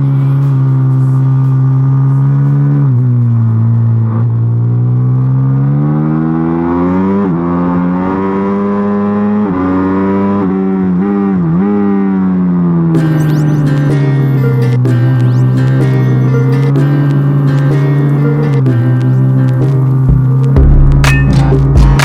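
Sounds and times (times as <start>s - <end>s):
music: 0.0s - 4.0s, 13.0s - 22.0s.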